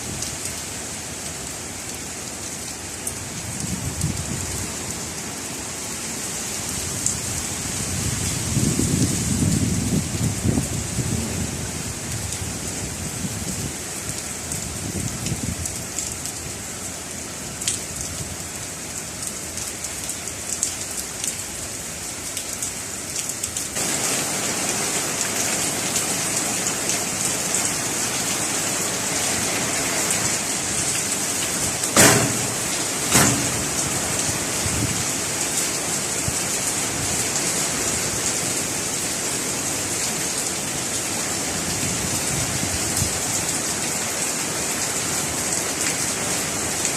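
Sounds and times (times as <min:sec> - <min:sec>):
heavy rain falling: 0:00.0 - 0:46.9
sharp knocks: 0:32.0 - 0:33.8.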